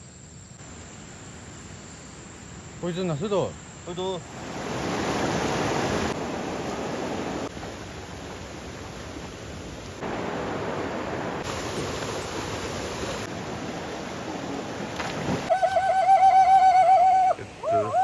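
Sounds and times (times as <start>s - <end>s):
rushing water: 4.1s - 18.0s.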